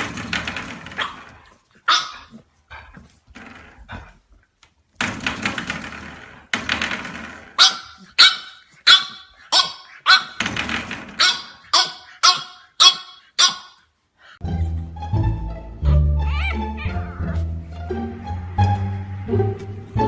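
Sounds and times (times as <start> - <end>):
dog barking sharply: 1.9 - 2.3, 7.6 - 10.4, 11.2 - 13.8.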